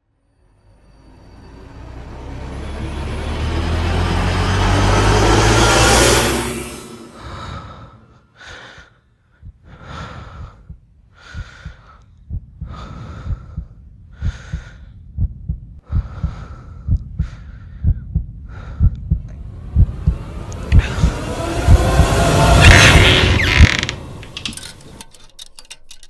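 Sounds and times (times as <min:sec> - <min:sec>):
heavy strained breathing: 0:07.2 - 0:15.0
low thumps: 0:09.4 - 0:25.0.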